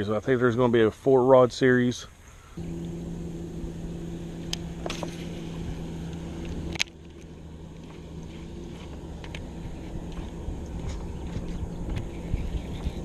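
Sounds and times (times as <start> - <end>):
low outdoor rush: 2.0 - 13.0
motor humming: 2.6 - 13.0.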